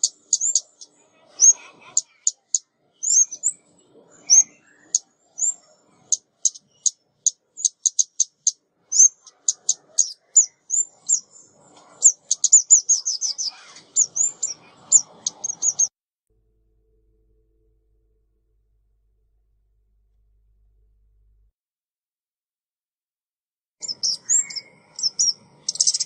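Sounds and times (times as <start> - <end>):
bird chip calls: 0.0 - 3.6, 4.2 - 15.9, 23.8 - 26.0.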